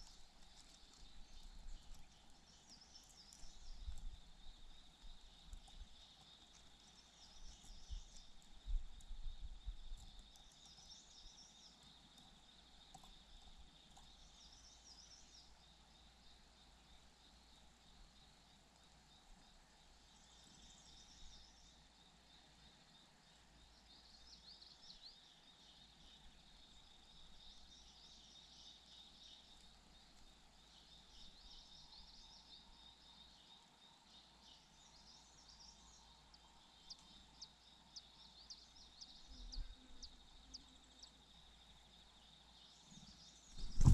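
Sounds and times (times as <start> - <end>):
small birds chirping: 0.0 - 43.9
low bumps: 43.6 - 43.9.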